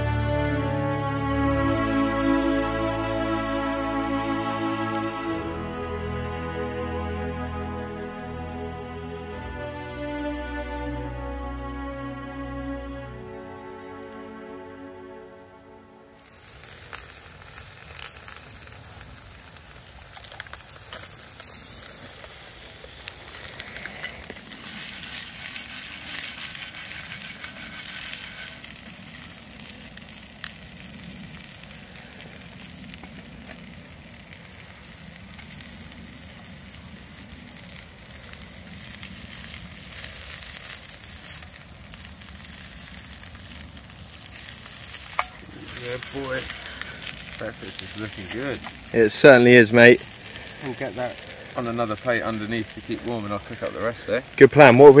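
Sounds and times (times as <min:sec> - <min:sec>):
meat sizzling in a frying pan: 0:16.2 - 0:55.0.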